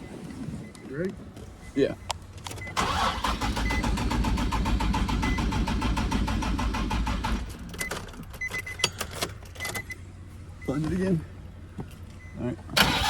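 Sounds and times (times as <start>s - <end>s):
starter cranking engine: 2.7s - 7.9s, 12.8s - 13.0s.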